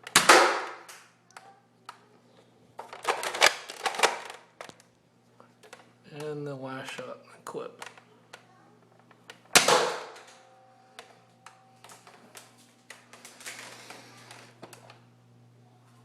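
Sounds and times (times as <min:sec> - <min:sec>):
toy blaster shot: 0:00.1 - 0:00.9, 0:09.6 - 0:10.3.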